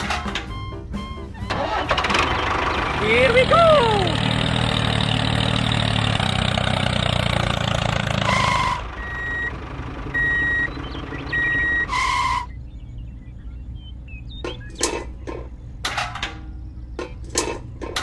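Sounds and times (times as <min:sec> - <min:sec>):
heavy vehicle engine running: 0:00.0 - 0:18.0
reversing alarm beeping: 0:08.3 - 0:12.6.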